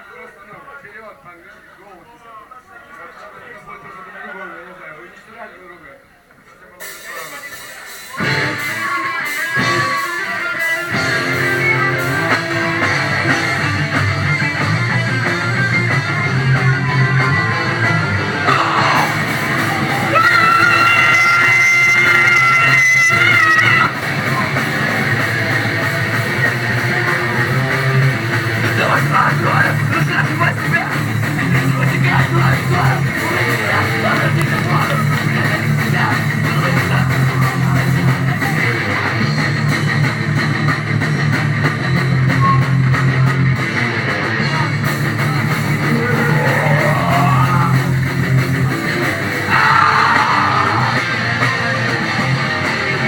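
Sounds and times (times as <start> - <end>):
electric guitar: 7.6 - 53.0
bass line: 10.8 - 53.0.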